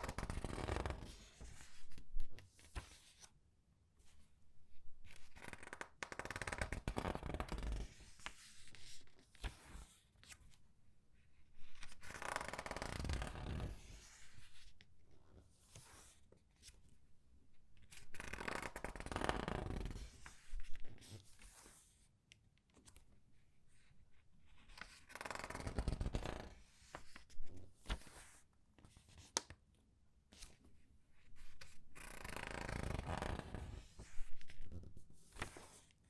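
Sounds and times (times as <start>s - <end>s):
comic book pages turning: 24.5s - 29.5s, 31.6s - 35.9s.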